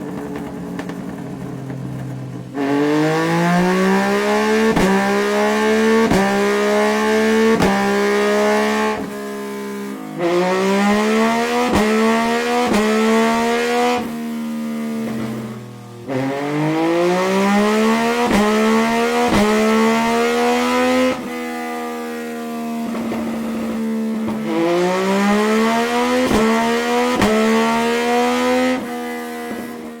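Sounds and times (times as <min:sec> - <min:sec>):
sharp exhaust cracks: 0:00.0 - 0:06.4
exhaust cracks: 0:00.0 - 0:09.2, 0:10.2 - 0:21.9, 0:22.6 - 0:30.0
motorcycle engine revving: 0:00.0 - 0:30.0.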